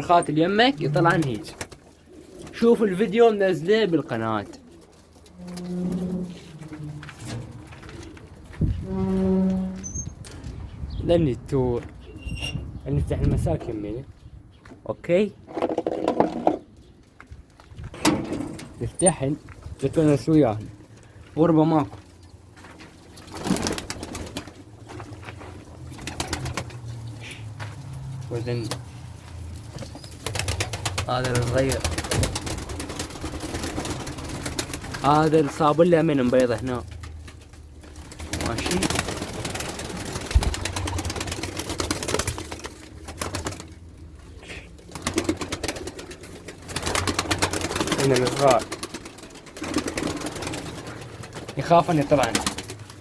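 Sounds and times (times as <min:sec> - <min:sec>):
pigeons cooing: 0:00.0 - 0:09.3
pigeons clicking and rustling: 0:00.0 - 0:10.7, 0:16.2 - 0:53.0.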